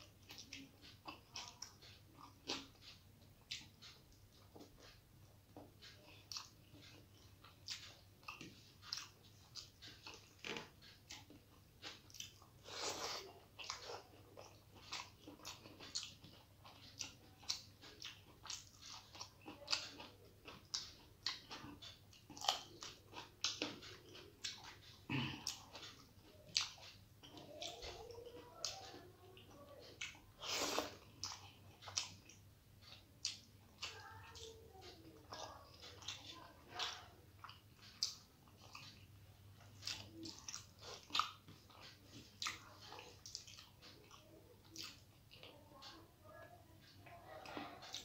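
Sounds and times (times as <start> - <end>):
person chewing wetly: 0.0 - 46.1, 46.8 - 48.0.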